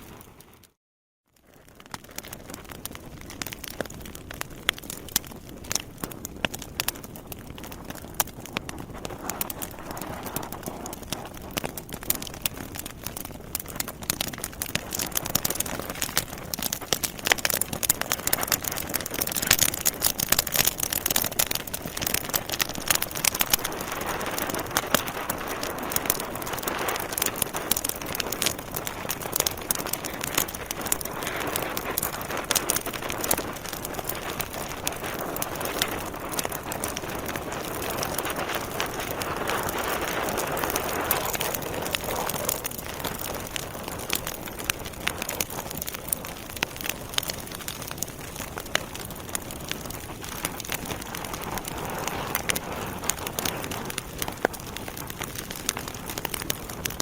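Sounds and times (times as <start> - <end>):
logs crackling and popping: 0.0 - 57.0
hiss of flame: 22.0 - 49.1, 49.8 - 56.4.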